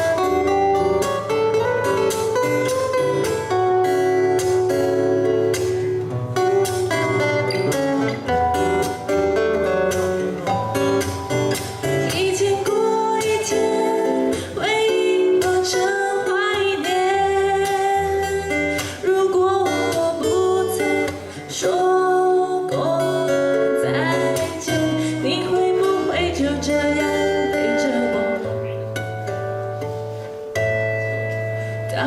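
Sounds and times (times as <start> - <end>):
acoustic guitars playing: 0.0 - 32.0
woman singing: 11.8 - 28.8.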